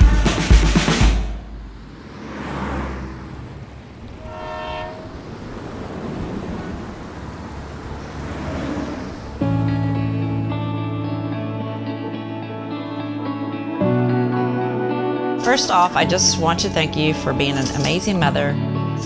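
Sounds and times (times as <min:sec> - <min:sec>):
short horn blast: 0:00.0 - 0:01.8, 0:04.2 - 0:05.3
beat-driven music: 0:00.0 - 0:01.9.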